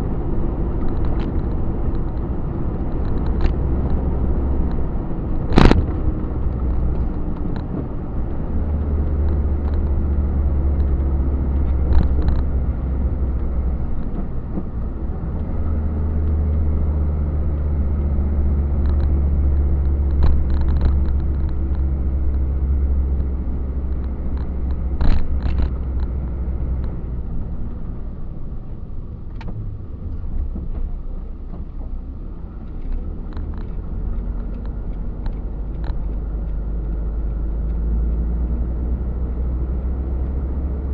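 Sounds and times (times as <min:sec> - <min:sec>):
truck engine drone in cab: 0:00.0 - 0:40.9
cab rattles: 0:18.4 - 0:27.7.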